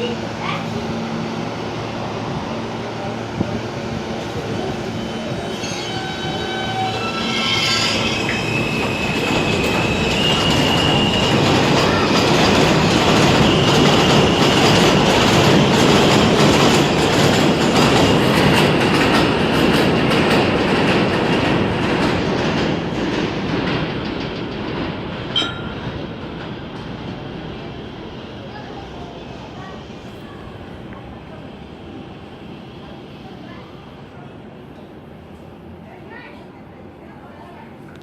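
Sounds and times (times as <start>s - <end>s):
wheel squeal: 5.4s - 11.5s
train wheels clacking over rail joints: 8.2s - 27.0s.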